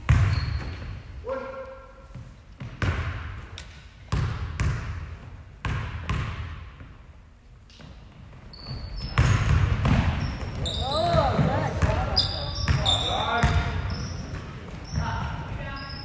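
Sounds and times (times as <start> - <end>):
shoe squeaks: 0.2 - 1.0, 8.4 - 9.5, 10.2 - 16.0.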